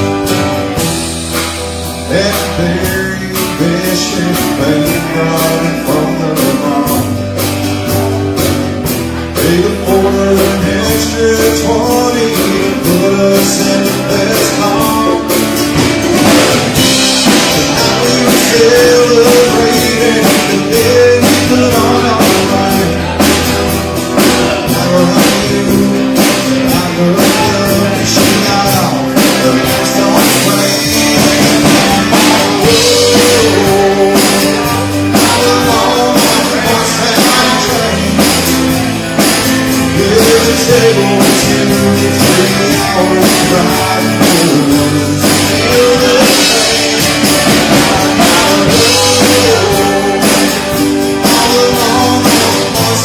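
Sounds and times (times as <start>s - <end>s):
guitar: 0.0s - 53.0s
live country-rock band: 0.0s - 53.0s
steady drum beat: 0.0s - 53.0s.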